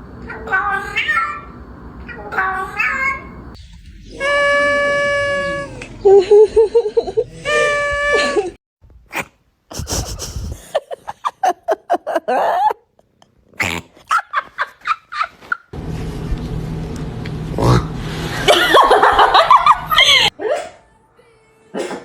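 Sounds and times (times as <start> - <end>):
cat crying: 0.3 - 3.4, 4.1 - 5.9, 7.3 - 8.6.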